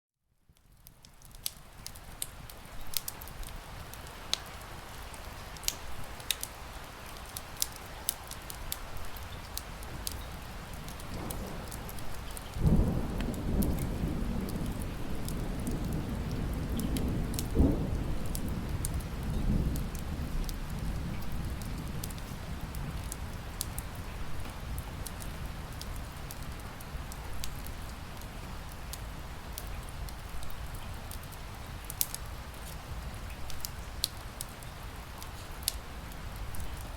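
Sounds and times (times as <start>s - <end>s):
wood fire crackling and popping: 0.6s - 36.9s
rain hissing: 1.3s - 36.9s
thunder rumbling: 9.9s - 26.3s.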